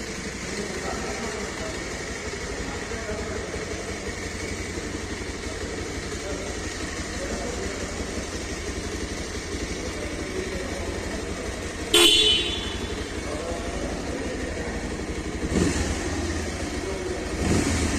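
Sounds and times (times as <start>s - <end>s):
motorcycle engine idling: 0.0s - 17.9s
horn beep: 11.9s - 13.3s.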